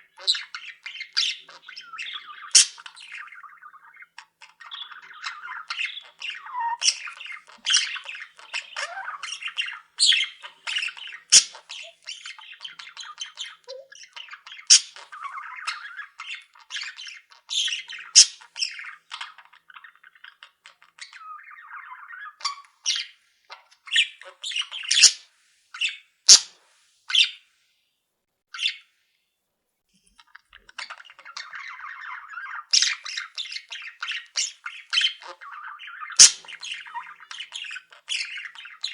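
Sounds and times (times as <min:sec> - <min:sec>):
sharp loud bird calls: 0:00.0 - 0:19.2, 0:23.9 - 0:25.2, 0:30.6 - 0:38.9
cage birds chattering: 0:00.0 - 0:27.4, 0:28.6 - 0:28.8, 0:30.1 - 0:38.9.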